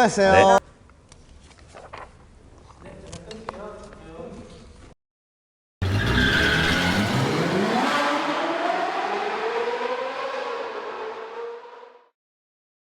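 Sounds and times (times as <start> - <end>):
car engine accelerating: 5.8 - 12.2.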